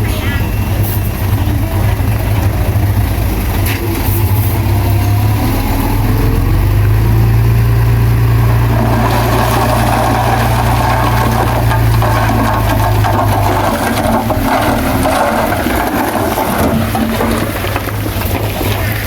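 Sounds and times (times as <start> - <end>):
diesel engine humming: 0.0 - 19.0
rough grinding noise: 8.2 - 19.0.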